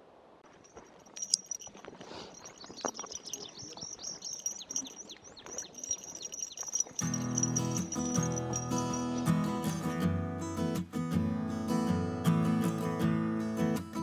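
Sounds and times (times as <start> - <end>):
small birds chirping: 0.7 - 10.0.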